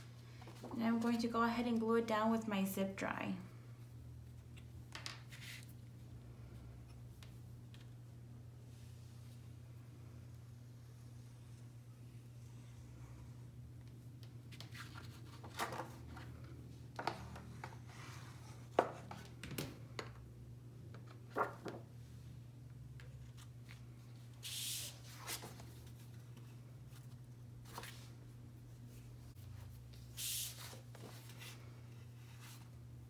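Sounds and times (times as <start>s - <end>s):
low steady hum: 0.0s - 33.0s
paper rustle: 21.2s - 21.8s.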